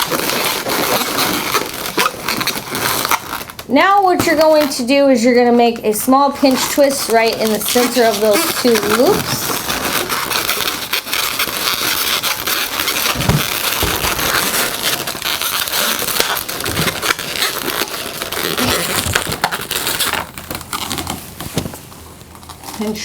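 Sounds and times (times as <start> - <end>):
balloons rubbing and crackling: 0.0 - 23.0.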